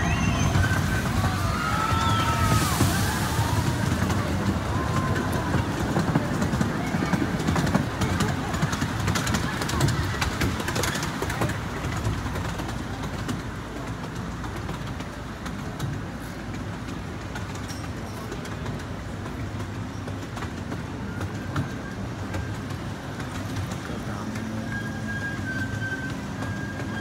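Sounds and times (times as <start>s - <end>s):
faint high wheel squeal: 0.0s - 3.7s, 20.9s - 27.0s
small train rumbling on track: 0.0s - 27.0s.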